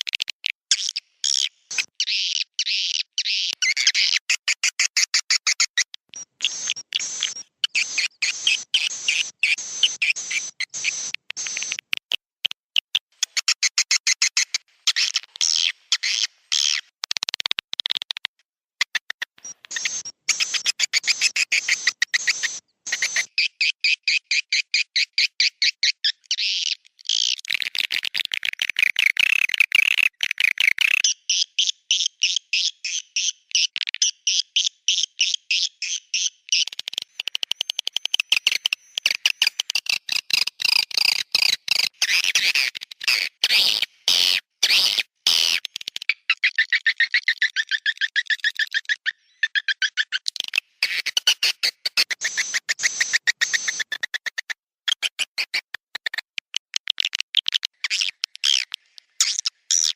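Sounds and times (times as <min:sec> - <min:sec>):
swiftlets twittering chirps: 0:00.7 - 0:11.9, 0:19.4 - 0:26.2, 0:45.3 - 0:54.2.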